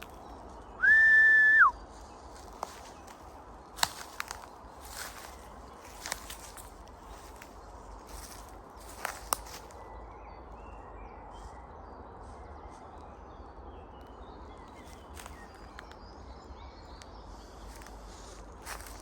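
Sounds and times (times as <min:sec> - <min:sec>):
faint bird chirps: 0:00.0 - 0:03.2, 0:03.8 - 0:13.2, 0:13.8 - 0:19.0
rustles and footsteps: 0:01.8 - 0:09.8, 0:17.0 - 0:19.0.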